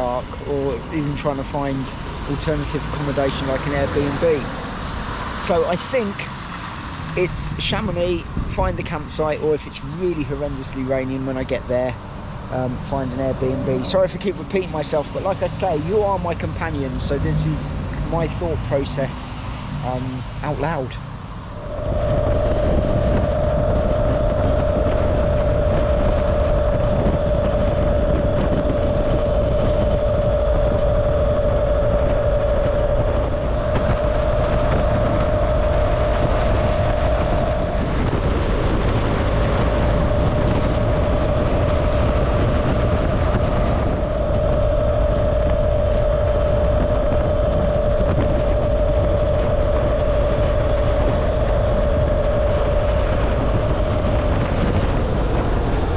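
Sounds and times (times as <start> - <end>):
road and wind noise: 0.0 - 55.9
steady whine: 0.0 - 55.9
motorcycle engine cruising: 21.6 - 55.9.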